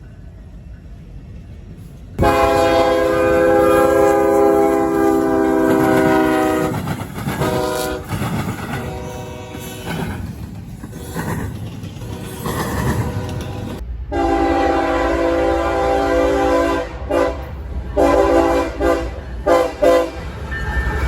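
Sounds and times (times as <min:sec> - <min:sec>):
train rumbling on rails: 0:00.0 - 0:21.0
locomotive air horn blasts: 0:02.2 - 0:08.1, 0:08.8 - 0:10.0, 0:12.0 - 0:20.2.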